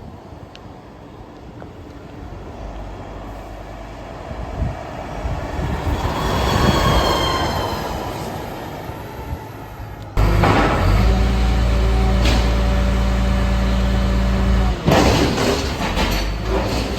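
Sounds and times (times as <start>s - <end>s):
heavy vehicle passing: 2.3s - 16.9s
high metallic squeal: 5.8s - 8.4s.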